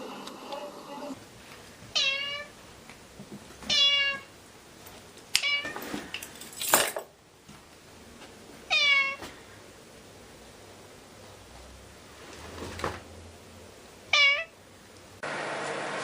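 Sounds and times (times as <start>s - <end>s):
cat meowing: 1.9s - 2.5s, 3.7s - 4.3s, 5.4s - 5.8s, 8.7s - 9.2s, 14.1s - 14.6s.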